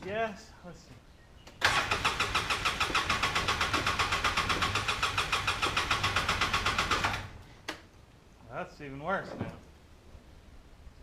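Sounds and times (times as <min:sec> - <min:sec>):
engine starter cranking: 0:01.6 - 0:07.4.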